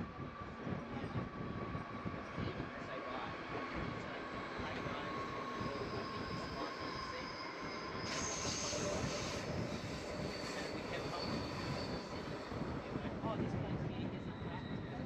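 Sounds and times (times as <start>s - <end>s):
train wheel and track noise: 0.0s - 15.0s
high wheel squeal: 4.4s - 13.1s.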